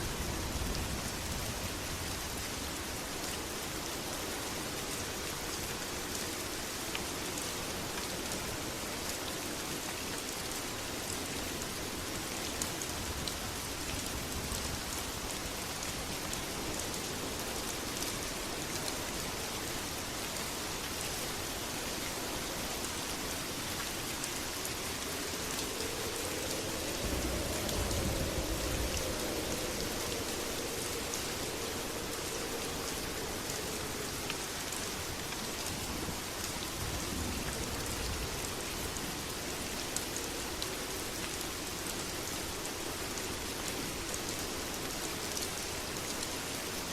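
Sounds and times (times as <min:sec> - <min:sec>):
heavy rain patter: 0:00.0 - 0:46.9
low rumble: 0:25.4 - 0:33.9.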